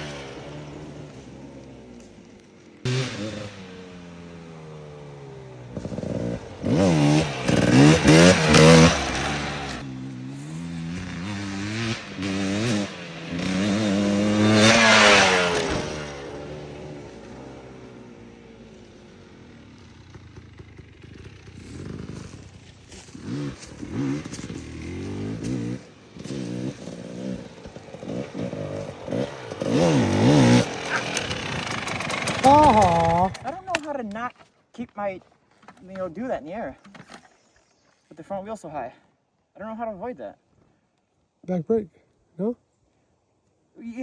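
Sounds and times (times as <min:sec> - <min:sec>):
dirt bike engine revving: 0:00.0 - 0:34.2.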